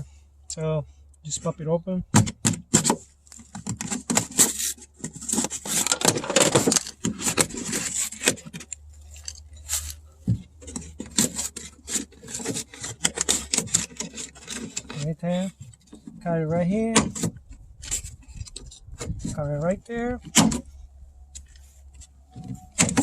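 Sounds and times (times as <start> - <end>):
car door speaker being pried loose: 2.1 - 8.8, 20.2 - 20.7, 22.4 - 23.0.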